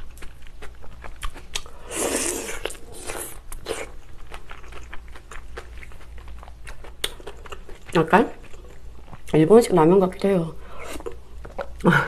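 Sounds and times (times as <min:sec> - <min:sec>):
chewing with wet mouth clicks: 0:00.0 - 0:01.7, 0:02.6 - 0:09.4.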